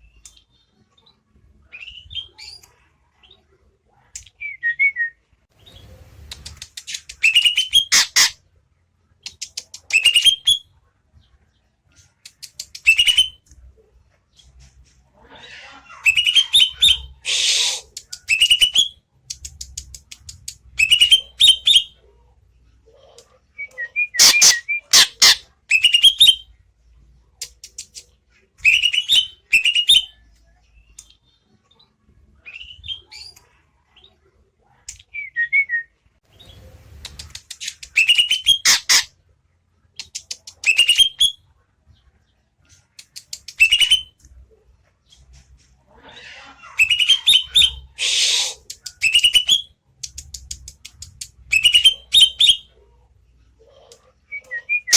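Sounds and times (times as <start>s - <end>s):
bird whistling song: 6.4s - 8.3s, 12.6s - 13.4s, 16.1s - 19.0s, 20.8s - 22.0s, 23.6s - 26.4s, 37.1s - 39.1s, 40.1s - 41.4s, 43.4s - 44.1s, 46.8s - 52.7s.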